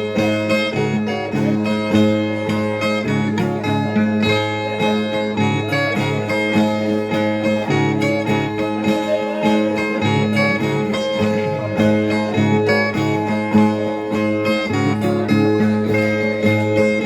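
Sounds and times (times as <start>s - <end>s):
plucked viola: 0.0s - 17.0s.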